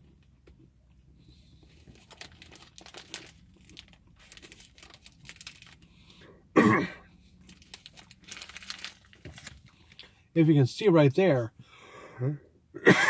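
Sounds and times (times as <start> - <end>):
plastic wrapper crinkling: 1.8 - 5.9, 7.4 - 10.1
chewing crispy snack bar: 1.9 - 5.8, 7.5 - 10.1
person coughing: 6.6 - 7.0, 12.2 - 13.0.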